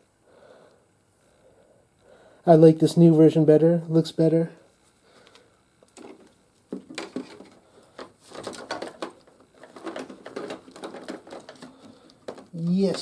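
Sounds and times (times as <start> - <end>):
hard plastic clicks and rattles: 5.9 - 13.0.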